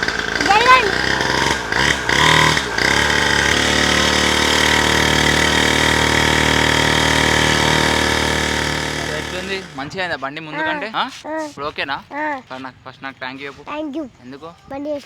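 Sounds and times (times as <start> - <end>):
small dirt bike engine running: 0.0 - 12.8.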